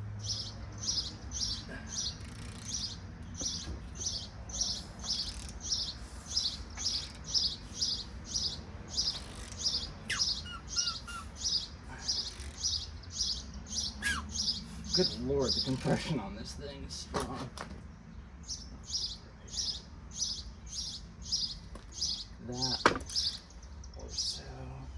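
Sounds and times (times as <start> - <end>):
small bird chirping: 0.2 - 16.2, 18.1 - 24.9
falling bird whistles: 10.0 - 11.7, 13.8 - 14.9.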